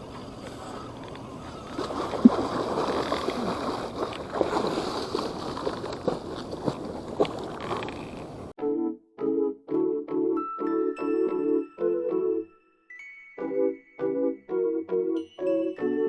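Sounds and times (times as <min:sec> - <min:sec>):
water splashing and sloshing: 0:00.1 - 0:08.5.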